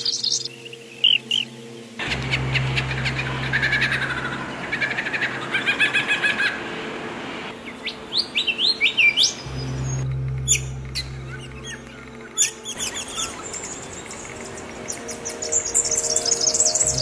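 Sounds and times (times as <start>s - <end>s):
songbirds chirping and singing: 0.0s - 6.1s, 7.5s - 17.0s
steady low hum: 9.3s - 17.0s.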